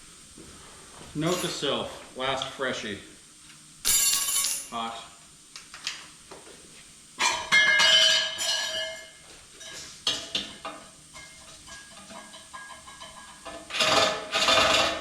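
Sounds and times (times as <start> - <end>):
metal parts clinking: 1.3 - 1.6, 3.9 - 4.7.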